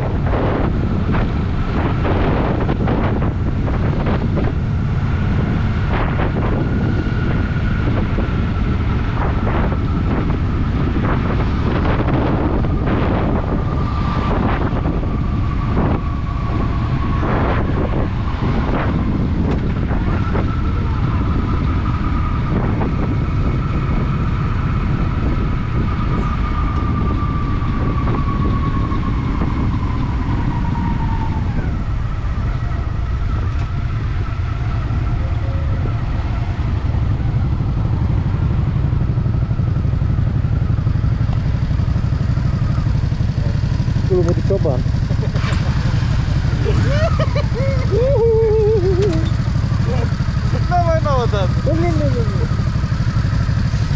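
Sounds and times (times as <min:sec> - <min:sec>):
wind rush on microphone: 0:00.0 - 0:53.9
motorcycle engine running: 0:35.3 - 0:53.9.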